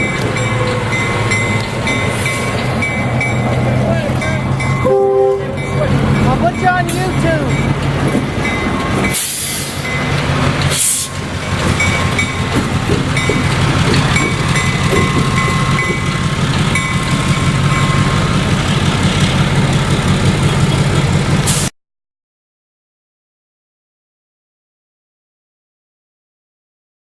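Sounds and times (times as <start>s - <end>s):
high train squeals: 0.0s - 21.7s
locomotive engine running: 0.0s - 21.7s
hiss rushes: 9.1s - 9.9s, 10.7s - 11.3s.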